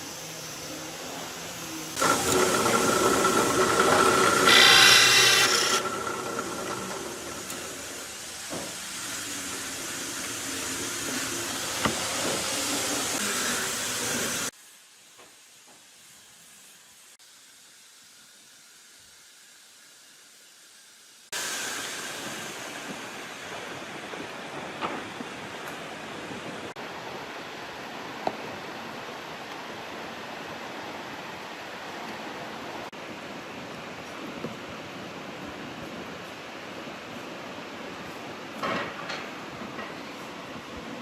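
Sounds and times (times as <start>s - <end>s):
angle grinder whining: 2.0s - 8.2s.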